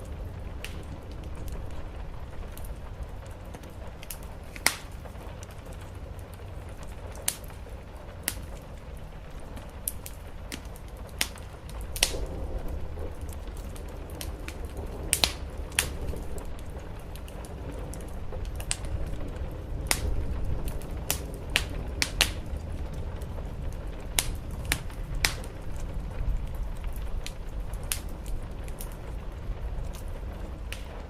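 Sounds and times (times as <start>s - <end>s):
rain on a roof: 0.0s - 31.0s
wood fire crackling and popping: 0.0s - 31.0s
low rumble: 11.7s - 31.0s.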